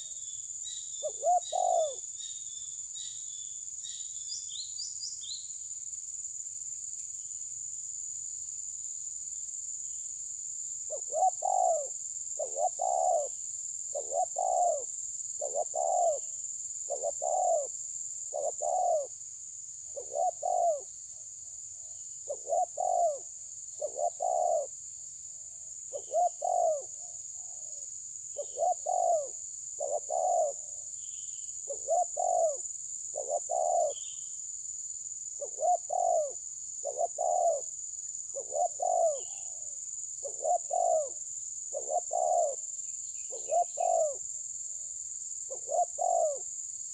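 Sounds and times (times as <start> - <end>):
bird calling: 0.0 - 5.5, 10.9 - 16.3, 16.9 - 17.7, 18.3 - 19.1, 19.9 - 20.9, 22.2 - 24.7, 25.9 - 27.8, 28.4 - 34.4, 35.4 - 37.7, 38.3 - 44.2, 45.5 - 46.5.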